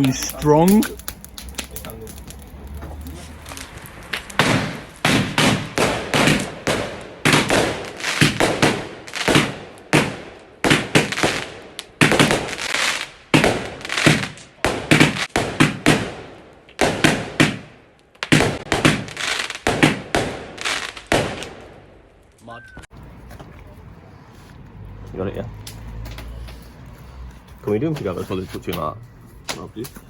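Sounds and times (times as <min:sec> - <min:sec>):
fireworks bangs: 0:00.0 - 0:22.0.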